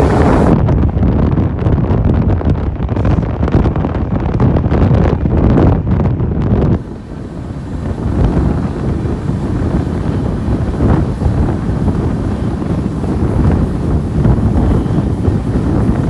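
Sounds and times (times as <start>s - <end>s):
train rumbling: 0.0s - 0.7s, 6.8s - 16.0s
wind buffeting microphone: 0.0s - 16.0s.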